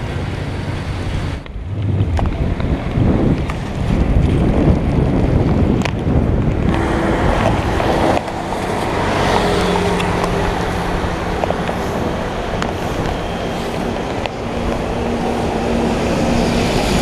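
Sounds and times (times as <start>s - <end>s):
passing traffic: 0.0s - 17.0s
wind buffeting microphone: 0.0s - 17.0s.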